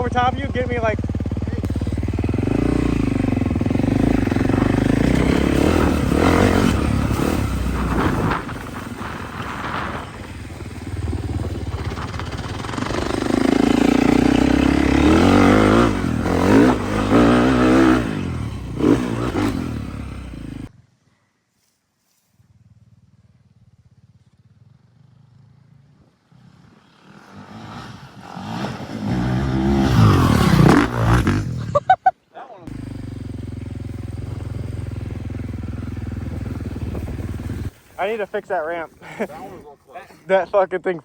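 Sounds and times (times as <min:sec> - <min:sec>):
off-road vehicle engine revving: 0:00.0 - 0:20.7, 0:26.2 - 0:31.9, 0:32.6 - 0:40.8.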